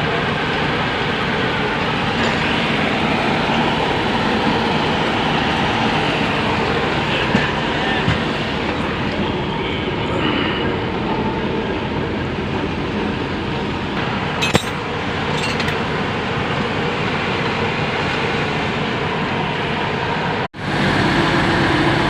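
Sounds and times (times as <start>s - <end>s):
heavy machine engine running: 0.0s - 22.0s
sharp metallic clink: 14.4s - 15.8s.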